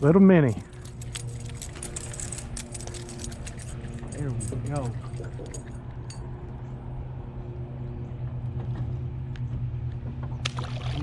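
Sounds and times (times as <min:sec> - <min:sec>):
low motor hum: 0:00.0 - 0:11.0
faint clinks: 0:00.5 - 0:06.3.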